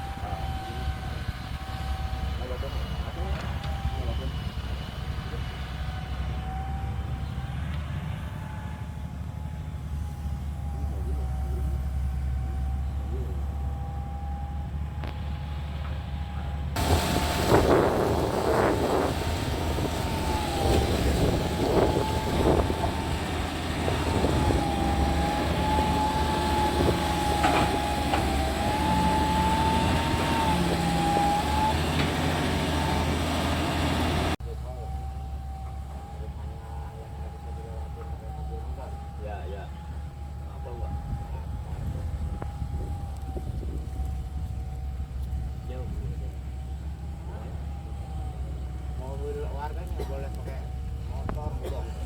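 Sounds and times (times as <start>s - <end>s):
excavator diesel engine running: 0.0s - 52.0s
high wavering whine: 16.8s - 29.7s
machine clunks and knocks: 27.3s - 28.4s.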